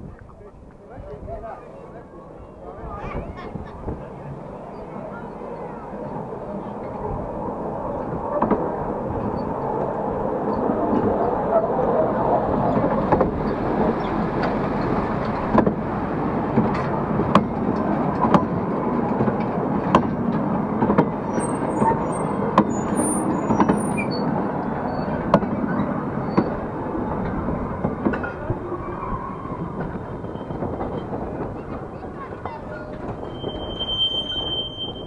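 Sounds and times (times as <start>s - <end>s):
train wheels rumbling on rail: 0.0s - 35.0s
wheels clacking over rail joints: 0.2s - 35.0s
high squeaks: 32.7s - 35.0s.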